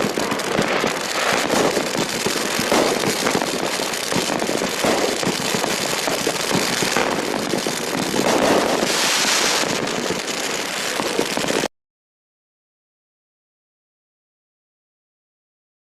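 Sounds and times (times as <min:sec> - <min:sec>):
fireworks crackling: 0:00.0 - 0:11.7.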